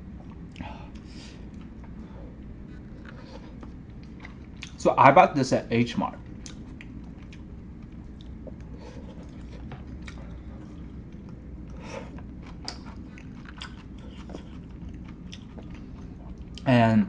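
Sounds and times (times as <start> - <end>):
person chewing food: 0.0 - 4.8, 6.2 - 16.7
steady low hum: 0.0 - 17.0
mouth clicks and smacks: 6.4 - 7.5.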